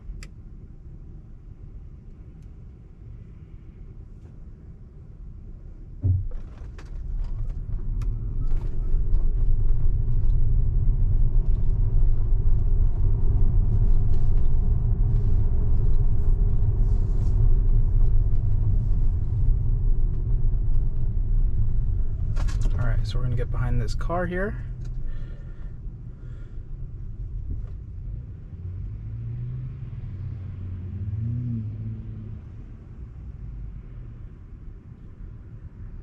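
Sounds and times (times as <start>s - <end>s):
thump: 6.0s - 7.1s
tyre and road rumble: 6.0s - 34.0s.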